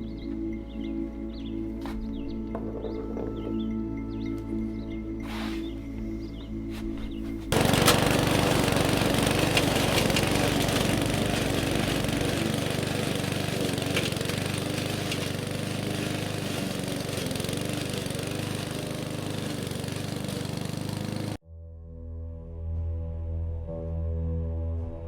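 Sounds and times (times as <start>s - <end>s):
small petrol engine running: 7.5s - 21.4s.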